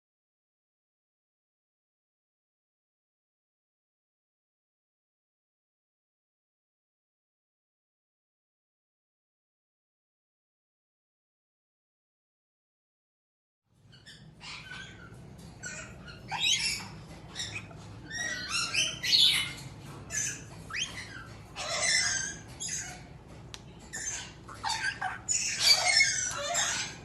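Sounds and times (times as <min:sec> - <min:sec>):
parrots squawking: 0:13.9 - 0:27.0.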